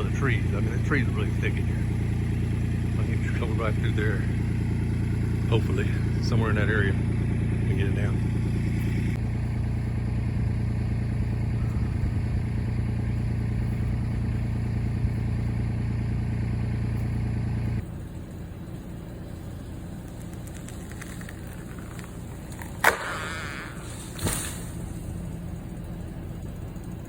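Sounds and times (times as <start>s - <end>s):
diesel tractor engine running: 0.0s - 27.0s
sharp crack: 19.3s - 26.0s.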